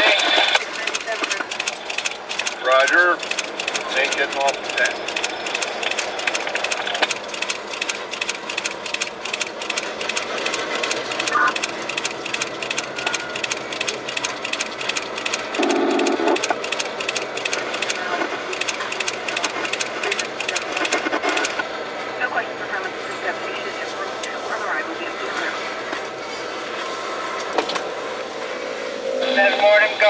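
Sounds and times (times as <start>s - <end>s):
train wheels clicking on track: 0.0s - 21.6s.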